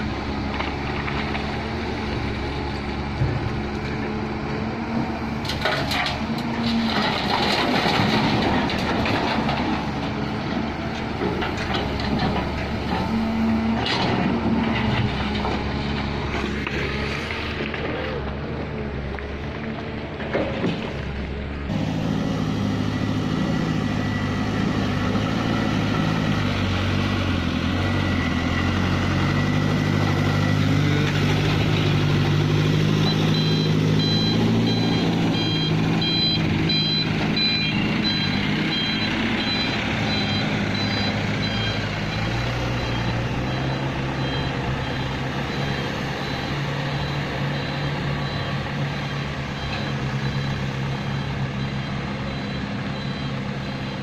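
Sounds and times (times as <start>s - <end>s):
heavy diesel machinery working: 0.0s - 54.0s
reversing alarm beeping: 32.7s - 54.0s.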